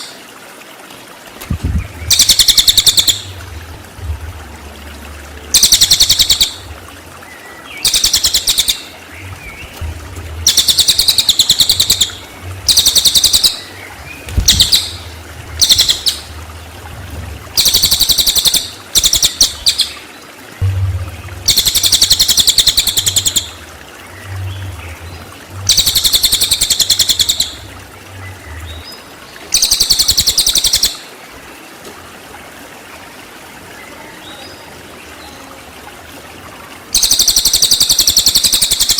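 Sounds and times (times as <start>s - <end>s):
songbird rattling trills: 1.7s - 3.4s, 5.5s - 6.7s, 7.8s - 9.8s, 10.4s - 16.3s, 17.6s - 20.0s, 21.4s - 27.6s, 29.5s - 31.0s, 37.0s - 38.9s.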